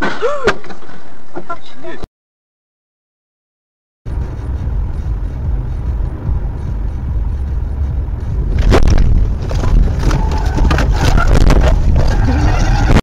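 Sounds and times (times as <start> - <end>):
car road and engine rumble: 4.1 - 13.0.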